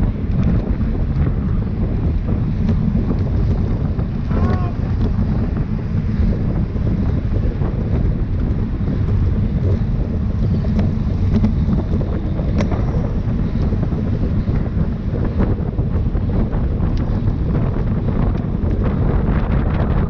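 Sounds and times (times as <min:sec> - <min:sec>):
wind buffeting microphone: 0:00.0 - 0:20.0
faint clicks and ticks: 0:07.0 - 0:19.9.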